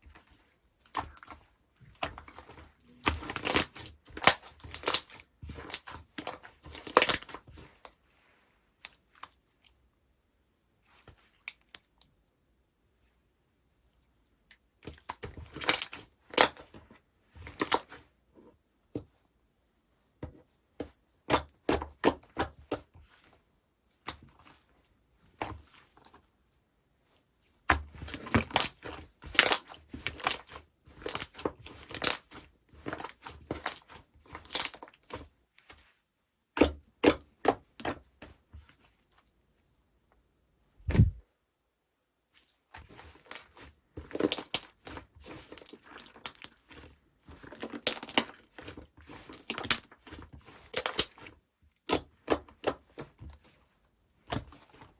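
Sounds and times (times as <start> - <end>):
low thump: 40.9 - 41.2.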